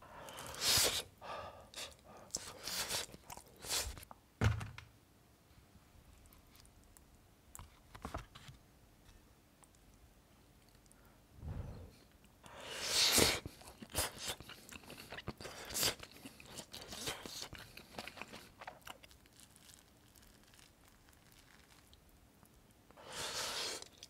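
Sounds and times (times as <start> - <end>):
crunchy chewing: 13.4 - 22.0.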